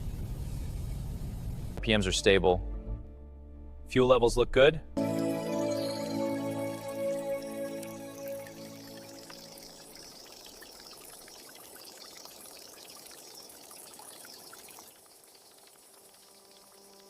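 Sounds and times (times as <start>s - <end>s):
water trickling with drips: 5.4s - 17.0s.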